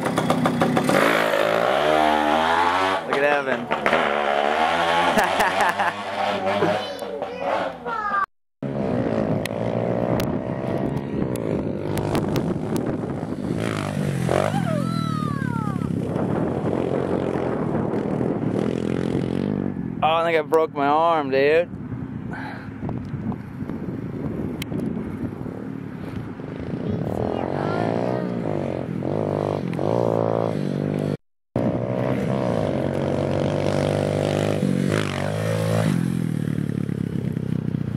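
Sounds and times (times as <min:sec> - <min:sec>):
dirt bike engine revving: 0:00.0 - 0:07.9, 0:08.6 - 0:19.8, 0:27.0 - 0:37.4.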